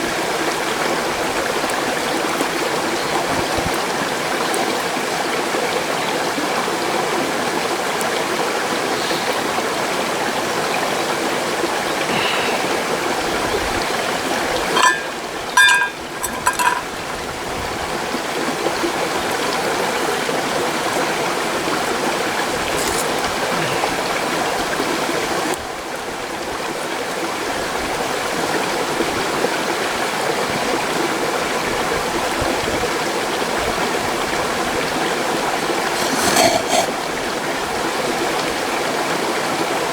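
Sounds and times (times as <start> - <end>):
short pitched clinks: 14.7 - 16.9.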